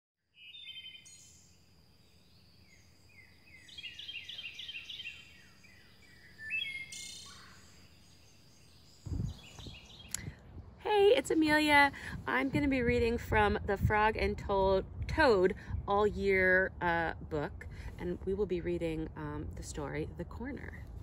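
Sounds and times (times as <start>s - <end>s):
birds singing: 0.3s - 10.8s
low thump: 9.1s - 9.8s.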